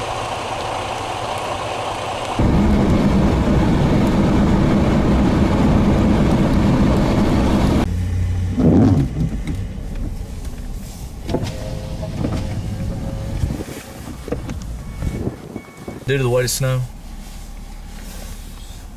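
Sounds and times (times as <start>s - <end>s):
quieter vehicle noise: 0.0s - 18.9s
vehicle engine humming: 0.0s - 18.9s.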